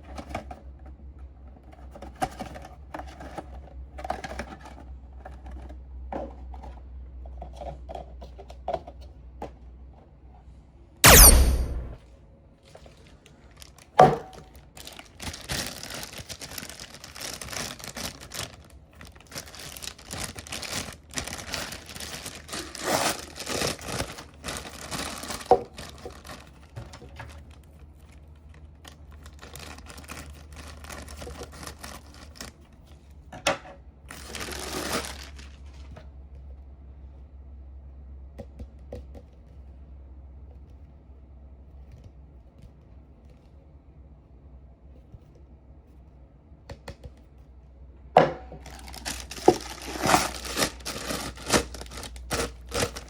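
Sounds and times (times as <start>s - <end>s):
food packaging crinkling: 13.0s - 32.6s, 34.1s - 35.9s, 48.6s - 53.0s.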